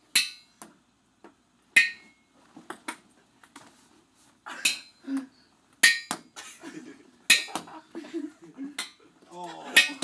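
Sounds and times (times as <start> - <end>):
ping-pong balls clicking and bouncing: 7.3 - 7.8, 8.7 - 9.0.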